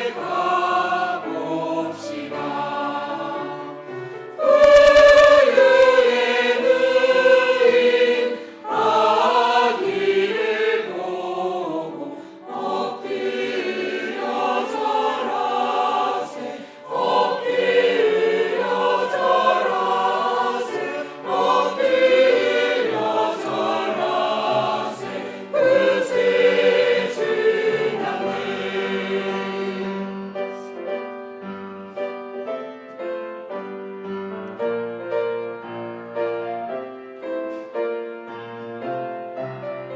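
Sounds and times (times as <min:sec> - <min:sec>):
choir singing: 0:00.0 - 0:30.8
keyboard accompaniment: 0:02.1 - 0:11.1
piano playing: 0:29.9 - 0:39.9.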